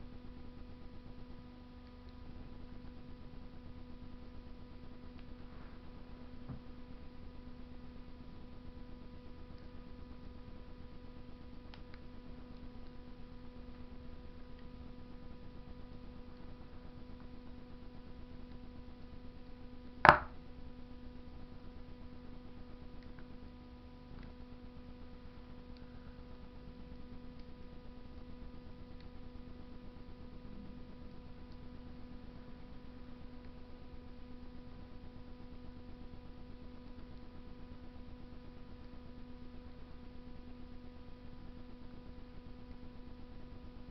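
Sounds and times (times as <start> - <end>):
stove fire hum: 0.0 - 43.9
faint fire ticks: 1.0 - 7.0, 9.1 - 19.7, 22.7 - 33.8
sharp loud fire pop: 20.1 - 20.4.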